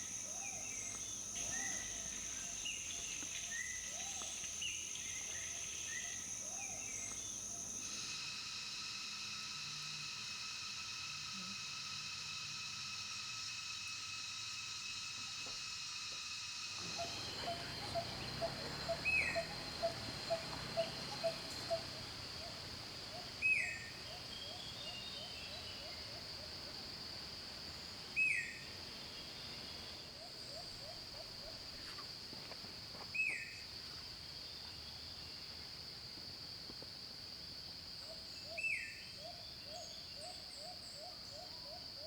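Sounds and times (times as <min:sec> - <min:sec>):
high insect drone: 0:00.0 - 0:42.0
low piping bird notes: 0:16.8 - 0:22.0.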